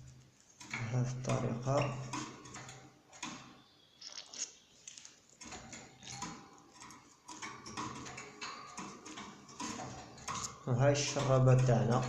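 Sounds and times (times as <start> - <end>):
plastic syringe and bottle clicking: 4.0 - 5.2.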